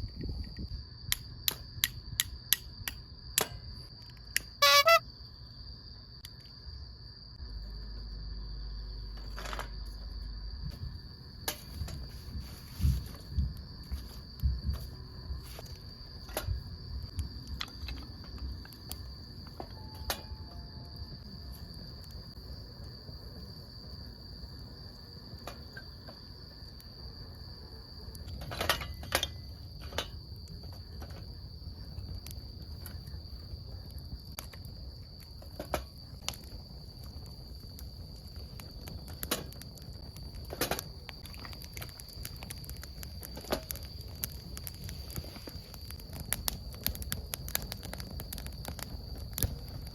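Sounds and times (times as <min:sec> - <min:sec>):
crickets trilling: 0:00.0 - 0:49.9
campfire crackling and popping: 0:00.2 - 0:04.6, 0:09.1 - 0:49.9.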